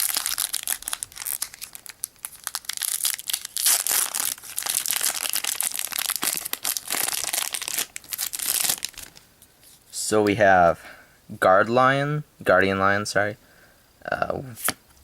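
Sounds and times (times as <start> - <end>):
foil wrapper crinkling: 0.0 - 9.8.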